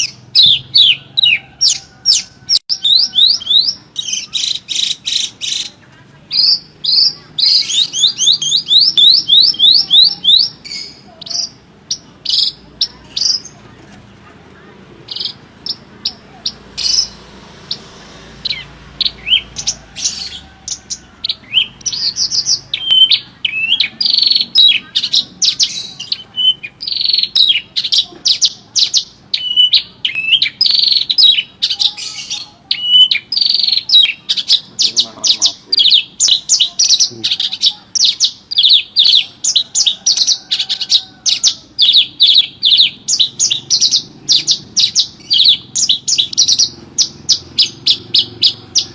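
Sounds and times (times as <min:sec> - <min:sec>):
lark singing high chirps and trills: 0:00.0 - 0:13.6, 0:15.1 - 0:48.9.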